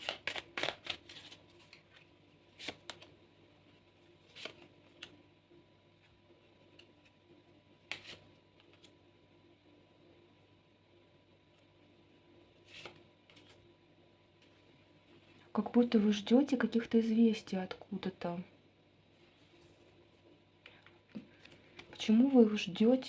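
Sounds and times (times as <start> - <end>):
cards shuffling: 0.0 - 3.1, 4.2 - 5.2, 7.8 - 9.0, 12.6 - 13.6.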